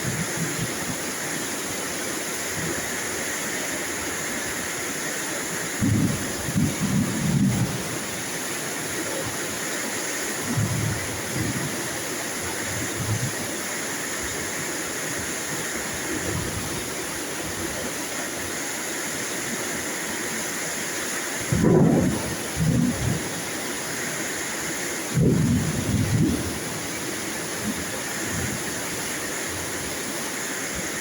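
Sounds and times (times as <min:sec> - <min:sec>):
rain falling: 0:00.0 - 0:31.0
low rumbles of thunder: 0:05.8 - 0:07.9, 0:21.4 - 0:23.3, 0:25.2 - 0:26.6.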